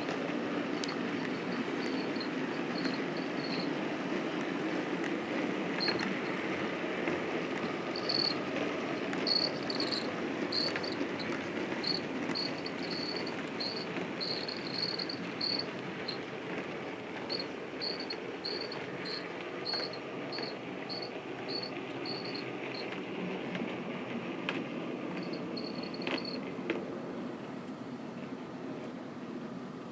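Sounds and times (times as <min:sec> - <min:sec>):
model train rumbling on track: 0:00.0 - 0:29.9
high-pitched chirps: 0:00.8 - 0:03.7, 0:05.8 - 0:06.1, 0:08.0 - 0:08.4, 0:09.3 - 0:11.1, 0:11.8 - 0:15.7, 0:17.3 - 0:22.4, 0:25.2 - 0:26.4.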